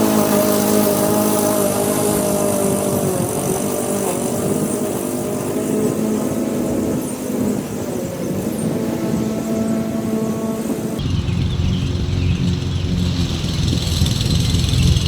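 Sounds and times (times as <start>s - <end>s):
lawnmower engine running: 0.0s - 15.0s.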